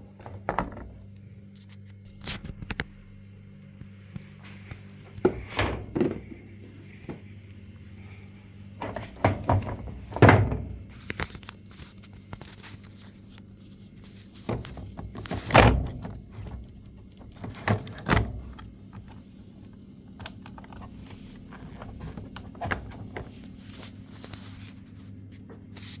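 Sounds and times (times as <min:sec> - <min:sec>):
knocks and clicks of panel handling: 0:00.3 - 0:01.0, 0:05.2 - 0:07.3, 0:08.8 - 0:10.9.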